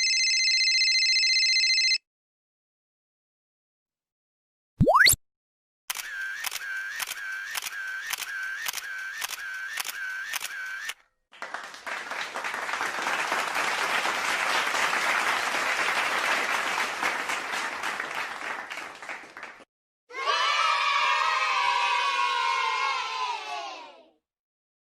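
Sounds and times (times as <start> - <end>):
sharp clicks with short tones: 5.9 - 11.0
applause: 11.3 - 19.7.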